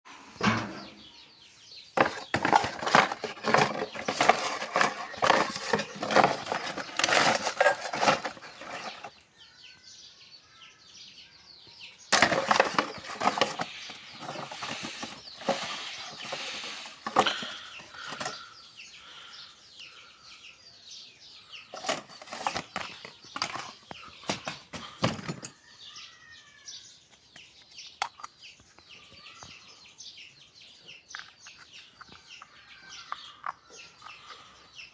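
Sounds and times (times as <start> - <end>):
rapid clicking and scraping: 2.0 - 9.1, 12.1 - 18.4, 21.8 - 25.5.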